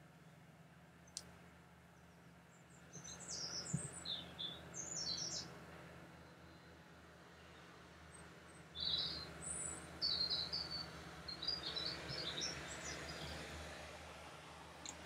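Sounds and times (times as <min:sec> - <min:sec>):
small birds chirping: 0:01.9 - 0:05.5, 0:07.4 - 0:13.6.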